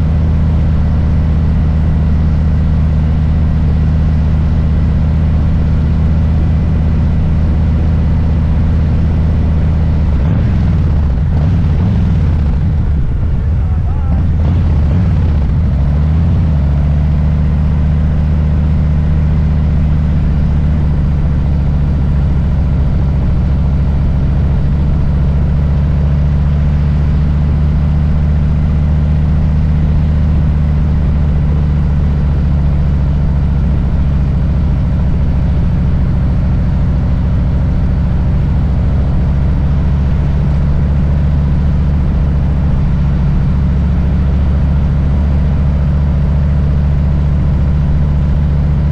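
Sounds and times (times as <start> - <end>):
motorcycle engine idling: 0.0 - 28.3.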